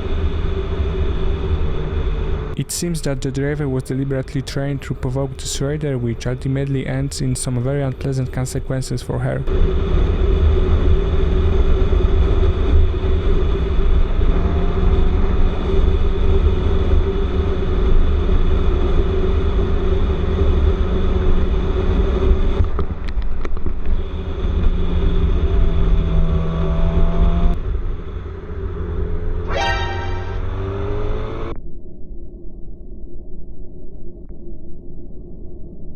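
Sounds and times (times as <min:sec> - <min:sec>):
wind rumble on microphone: 0:00.0 - 0:02.6, 0:09.5 - 0:28.6
rising and falling tone: 0:29.4 - 0:31.4.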